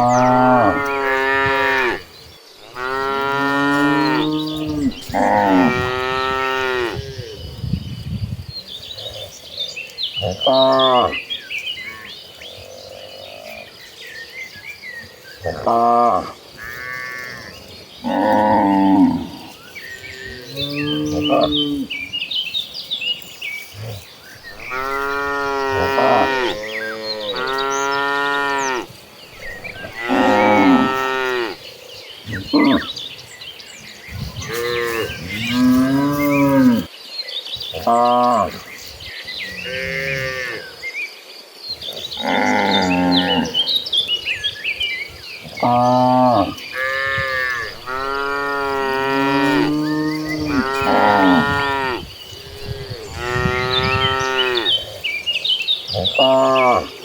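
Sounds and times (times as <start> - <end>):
cattle mooing: 0.0 - 2.0, 24.6 - 31.6, 45.6 - 54.8
cows mooing: 0.0 - 2.0, 2.7 - 7.4, 15.4 - 22.0, 23.7 - 31.6, 32.3 - 32.9, 34.2 - 36.9, 39.5 - 40.6, 42.2 - 43.7, 45.5 - 55.1, 55.9 - 57.0.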